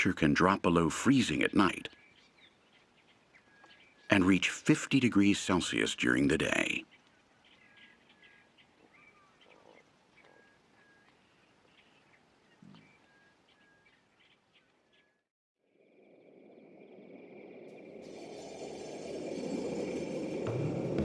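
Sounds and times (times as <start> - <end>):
small birds chirping: 0.0 - 15.3.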